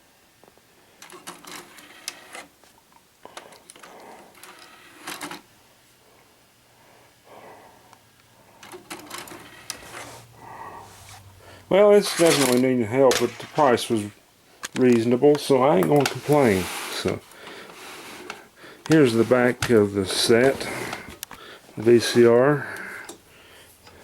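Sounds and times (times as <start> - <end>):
vcr clicks and clatter: 1.0 - 5.5, 8.6 - 10.0
low steady hum: 2.0 - 24.0.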